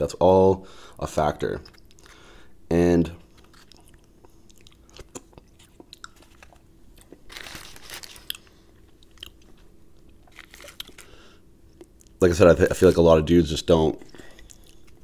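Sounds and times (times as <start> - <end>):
chewing crispy fried chicken: 3.2 - 12.2, 14.0 - 15.0.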